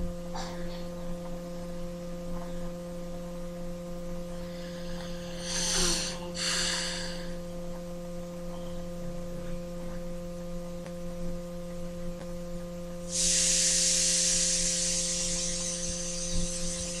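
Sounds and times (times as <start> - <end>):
low electrical hum: 0.0 - 17.0
loud steady hiss: 3.9 - 8.2, 13.0 - 17.0.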